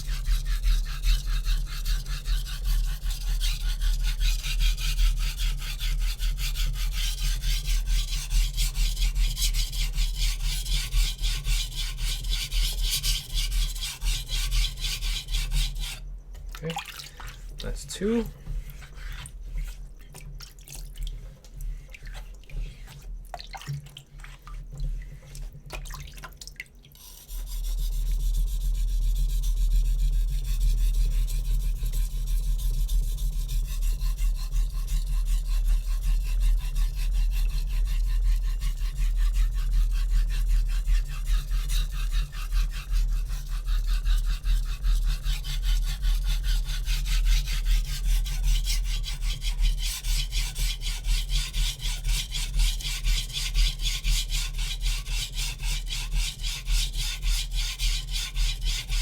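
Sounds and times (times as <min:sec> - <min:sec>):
knife rubbing on wet whetstone: 0:00.0 - 0:16.0, 0:16.6 - 0:25.6, 0:27.0 - 0:59.0
small drips and taps: 0:16.3 - 0:17.5, 0:20.0 - 0:27.0.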